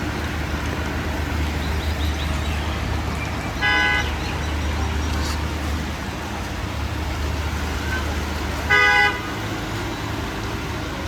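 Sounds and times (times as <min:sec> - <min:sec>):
street traffic rumble: 0:00.0 - 0:11.0
vehicle horn honk: 0:03.6 - 0:04.1, 0:08.7 - 0:09.3.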